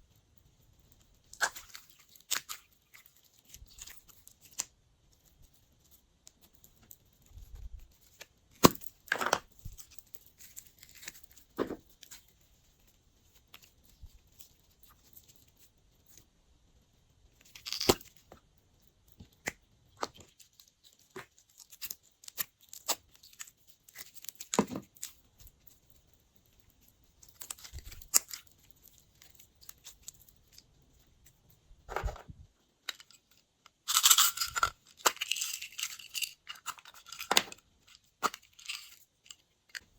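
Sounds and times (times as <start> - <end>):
slime crackling and popping: 17.4 - 18.3.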